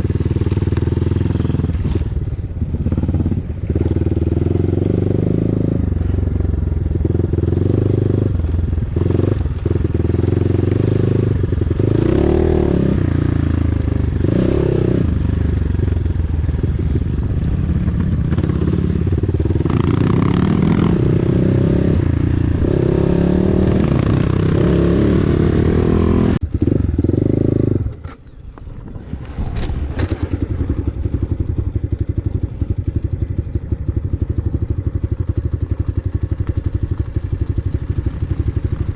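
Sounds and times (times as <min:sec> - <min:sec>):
motorcycle engine idling: 0:00.0 - 0:12.0, 0:13.0 - 0:23.0, 0:30.2 - 0:38.9
motorcycle engine revving: 0:00.0 - 0:38.9.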